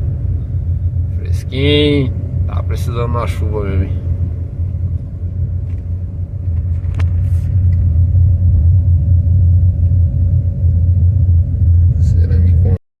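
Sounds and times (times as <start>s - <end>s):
faint steady hum: 0.0s - 12.8s
loud steady low rumble: 0.0s - 12.8s.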